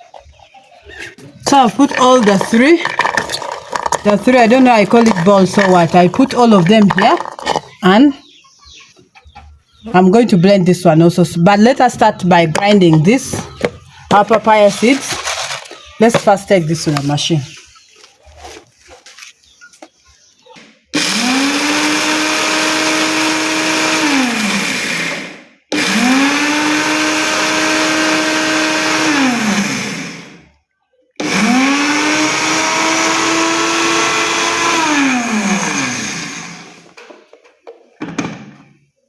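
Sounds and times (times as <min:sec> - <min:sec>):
electric grinder whirring: 0:01.4 - 0:07.8, 0:21.0 - 0:30.5, 0:31.2 - 0:37.0.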